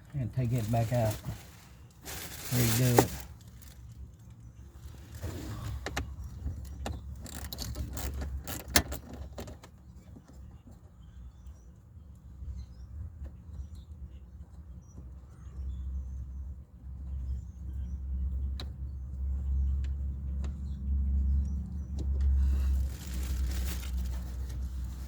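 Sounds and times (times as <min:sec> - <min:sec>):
sharp clicks and metallic rattles: 0:05.8 - 0:10.5.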